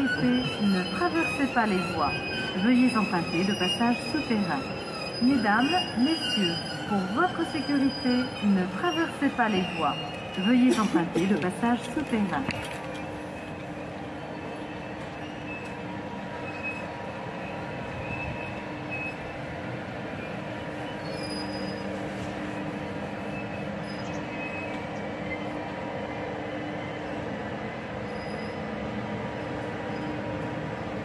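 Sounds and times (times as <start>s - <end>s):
high wheel squeaks: 0.0s - 10.9s, 20.8s - 25.5s, 28.0s - 28.7s
train running hum: 0.0s - 31.0s.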